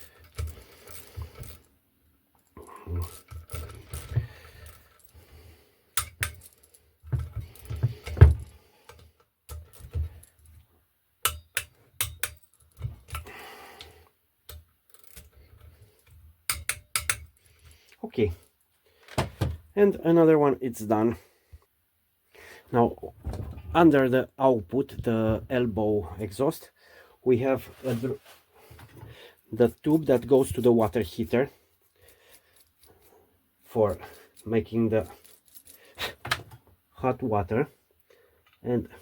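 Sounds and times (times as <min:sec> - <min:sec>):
metal hand tools clinking: 0:06.0 - 0:06.8, 0:33.8 - 0:36.2.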